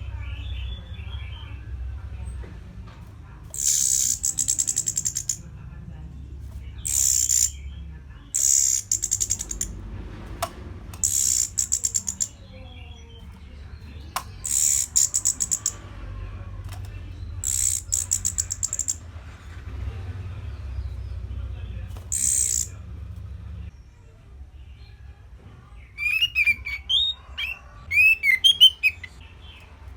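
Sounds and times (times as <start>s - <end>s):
thrush singing: 26.0s - 29.2s.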